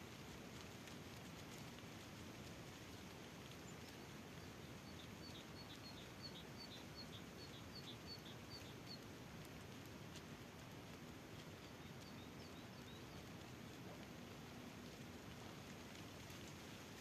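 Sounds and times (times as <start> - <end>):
faint outdoor background noise: 0.0 - 17.0
bird chirping: 3.8 - 9.0.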